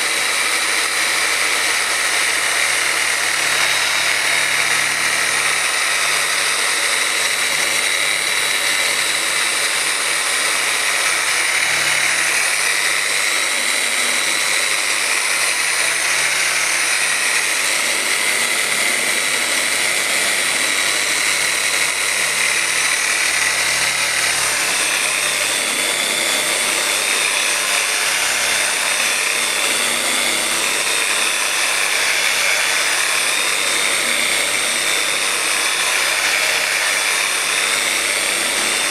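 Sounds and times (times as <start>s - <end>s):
orbital polisher whining: 0.0s - 38.9s.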